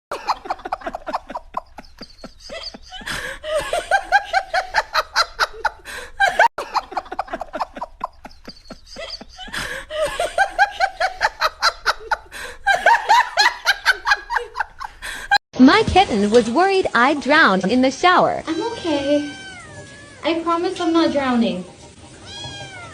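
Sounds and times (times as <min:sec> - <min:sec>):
person laughing hard: 0:00.1 - 0:15.4.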